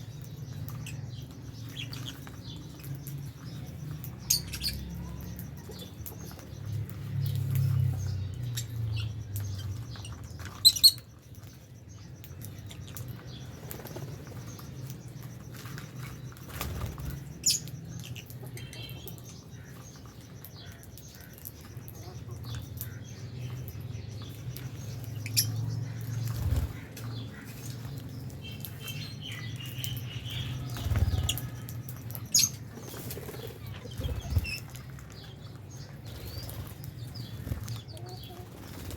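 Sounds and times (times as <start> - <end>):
birds flapping wings: 15.5 - 17.3, 26.2 - 27.1, 30.6 - 31.7, 32.7 - 35.1, 36.0 - 38.9.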